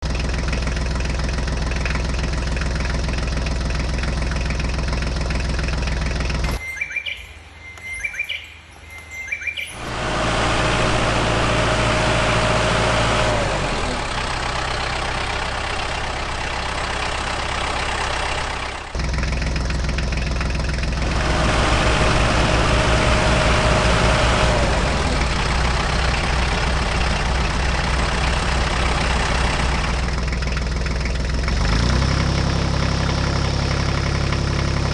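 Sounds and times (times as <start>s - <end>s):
birds chirping: 5.9s - 9.9s
toy tractor engine drone: 9.0s - 34.9s.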